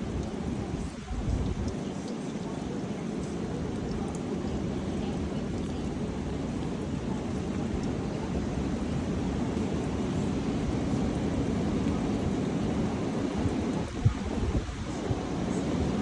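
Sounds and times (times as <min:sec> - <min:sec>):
strong wind blowing: 0:00.0 - 0:01.8, 0:03.0 - 0:16.0.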